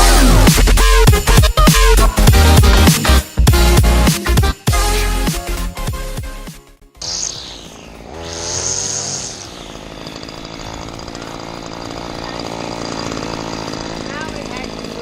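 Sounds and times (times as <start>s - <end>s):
small petrol engine revving: 7.0s - 15.0s.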